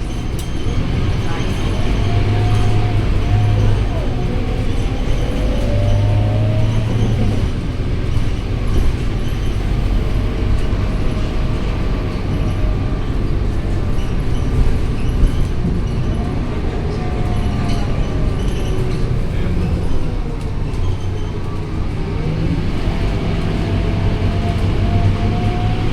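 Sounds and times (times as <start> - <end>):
bus engine drone: 0.0 - 25.9
road noise: 0.0 - 25.9.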